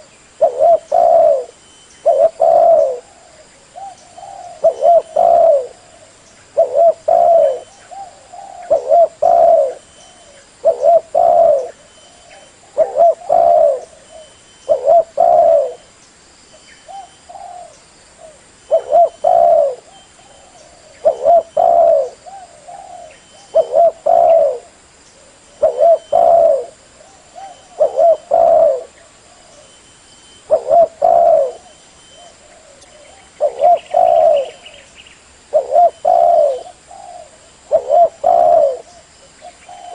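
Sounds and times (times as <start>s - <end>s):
dove cooing: 0.0s - 15.9s, 16.9s - 29.8s, 30.4s - 34.9s, 35.5s - 39.9s.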